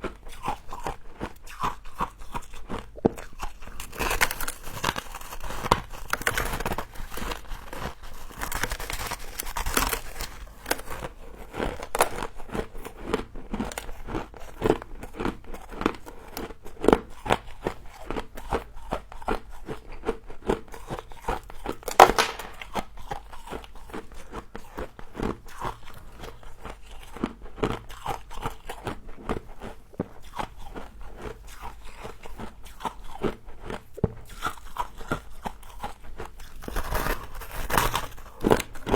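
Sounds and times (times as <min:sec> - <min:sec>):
frost being chewed: 0:00.0 - 0:38.9.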